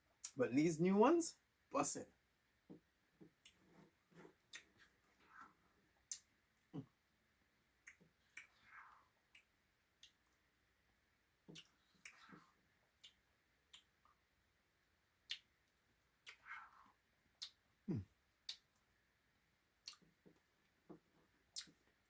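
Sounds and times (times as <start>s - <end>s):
wet mouth smacks: 19.8s - 20.1s, 21.5s - 21.8s.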